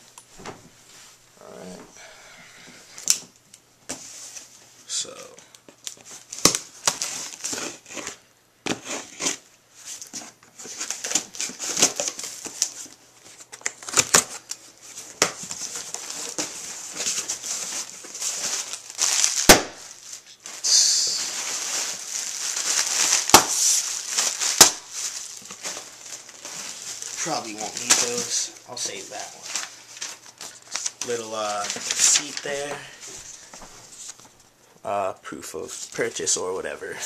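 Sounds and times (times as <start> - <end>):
packaging crinkling and rustling: 5.5 - 34.5.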